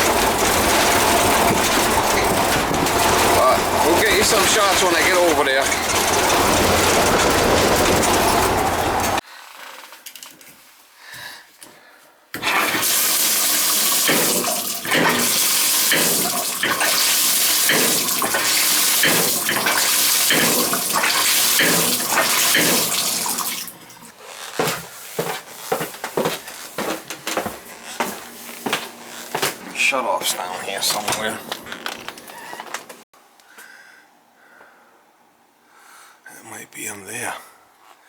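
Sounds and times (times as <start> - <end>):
water rushing through shower valve: 0.0 - 9.2, 12.4 - 24.1
sharp knocks in pipes: 14.0 - 23.6.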